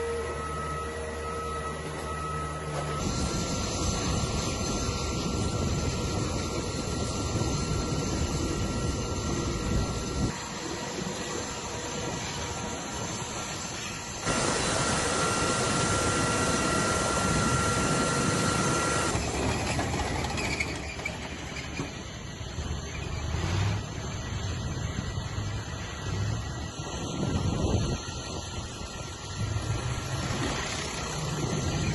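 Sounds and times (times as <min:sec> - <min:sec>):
helicopter engines and rotor: 0:00.0 - 0:31.9
high turbine whine: 0:00.0 - 0:31.9.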